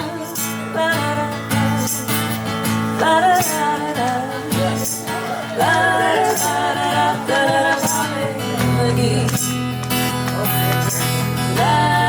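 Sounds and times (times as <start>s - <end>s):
person singing: 0.0s - 9.6s, 10.6s - 12.0s
country-rock band playing: 0.0s - 12.0s.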